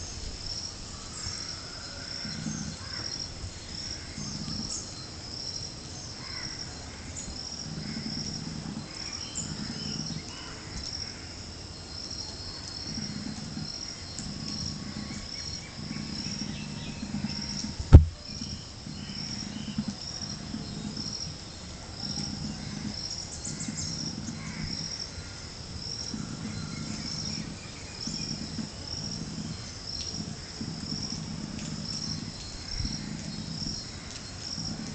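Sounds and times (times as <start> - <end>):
insects chirping: 0.0 - 34.9
sharp knock: 17.9 - 18.2.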